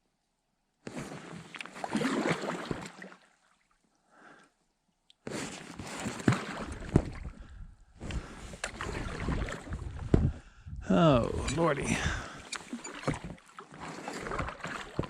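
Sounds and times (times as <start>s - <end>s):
paddle strokes splashing: 0.9s - 3.6s, 5.3s - 7.3s, 8.2s - 10.1s, 11.2s - 15.0s.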